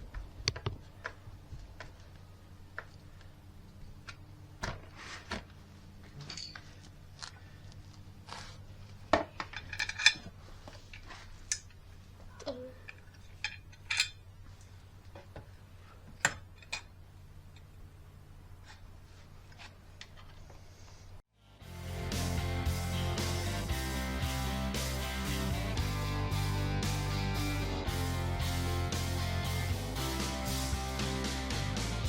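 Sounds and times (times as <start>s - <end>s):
tools and metal parts clinking: 6.1s - 6.9s, 9.4s - 10.3s, 12.8s - 14.2s, 16.2s - 17.7s.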